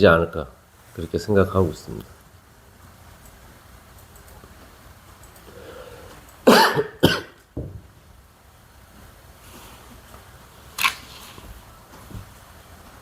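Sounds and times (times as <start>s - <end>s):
person coughing: 6.4s - 7.4s.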